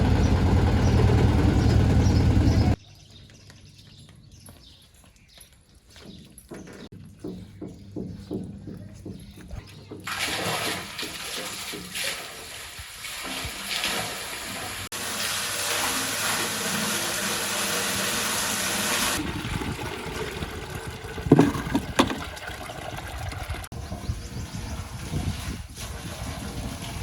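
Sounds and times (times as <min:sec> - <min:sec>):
water gushing and splashing: 0:10.0 - 0:23.8, 0:24.7 - 0:27.0.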